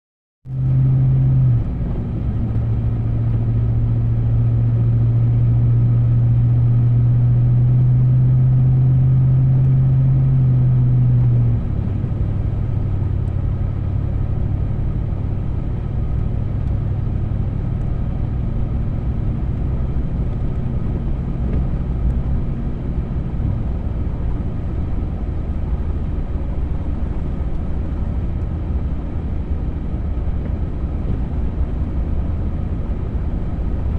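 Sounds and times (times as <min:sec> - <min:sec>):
road rumble: 0:00.5 - 0:33.9
vehicle engine running: 0:00.5 - 0:33.9.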